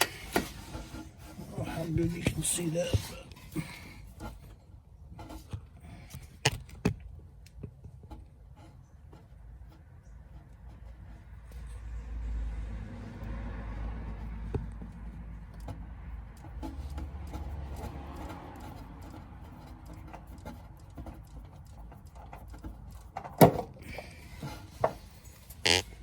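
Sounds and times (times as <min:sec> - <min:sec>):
low rumbling handling noise: 0:00.0 - 0:26.0
light clicks and knocks: 0:14.0 - 0:25.8.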